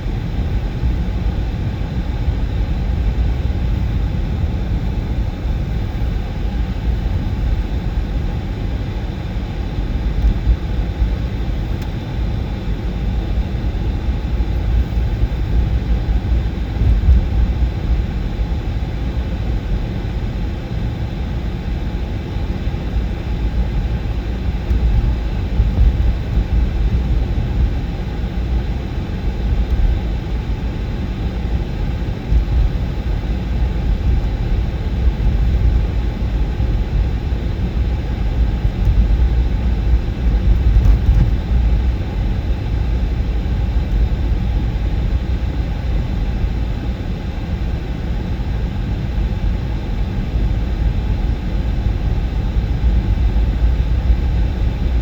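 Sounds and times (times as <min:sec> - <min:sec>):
low rumbling noise: 0:31.4 - 0:45.4.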